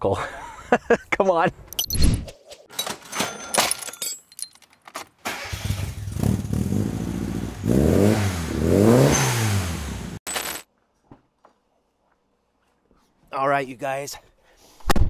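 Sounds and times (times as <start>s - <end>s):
small engine starting and revving: 5.3s - 10.2s.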